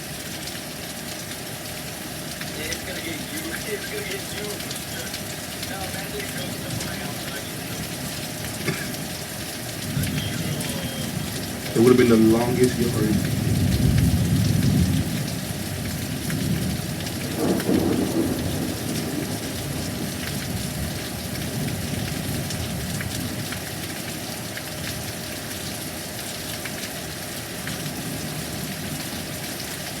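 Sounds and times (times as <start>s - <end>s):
steady rain: 0.0s - 30.0s
thunder rumbling: 3.2s - 23.0s.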